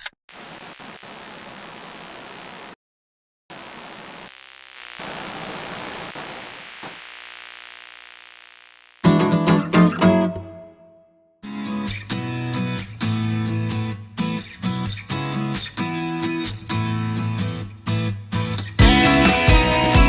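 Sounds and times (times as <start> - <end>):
white-noise hiss: 0.3 - 2.8, 3.5 - 9.0
strummed guitar music: 9.0 - 20.0.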